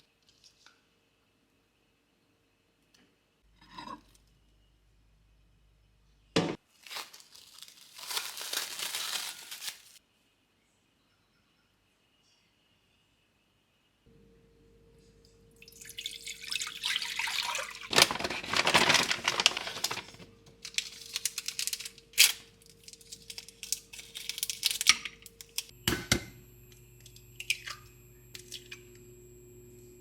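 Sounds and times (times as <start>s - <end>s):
faint steady hum: 14.1s - 18.2s, 19.8s - 30.0s
kitchen tap running into sink: 15.6s - 20.0s.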